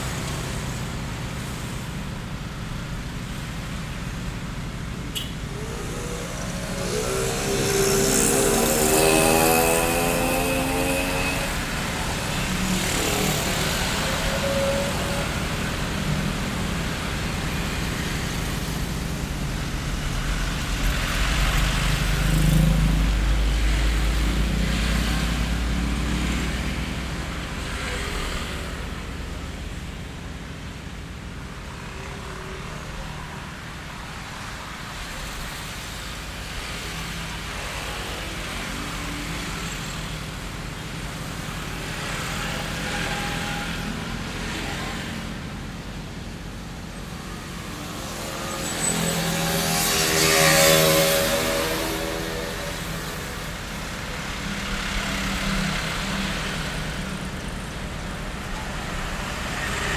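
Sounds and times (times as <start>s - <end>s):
road traffic noise: 0.0s - 59.9s
low-rumbling vehicle passing: 4.5s - 27.6s.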